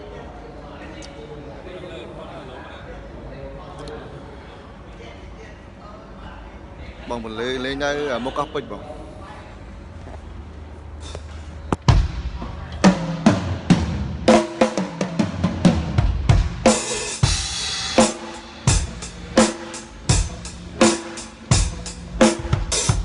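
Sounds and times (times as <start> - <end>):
bass drum hits: 11.8 - 14.5.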